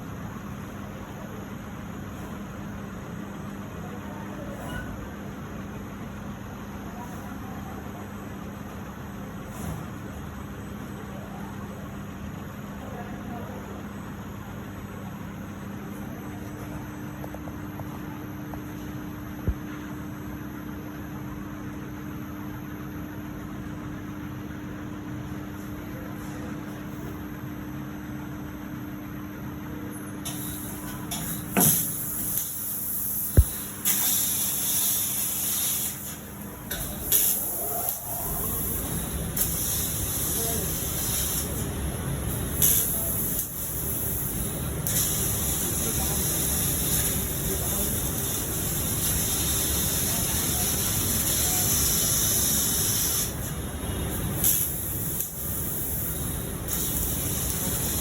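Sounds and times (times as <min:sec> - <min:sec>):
cutting torch hissing: 0:30.3 - 0:58.0.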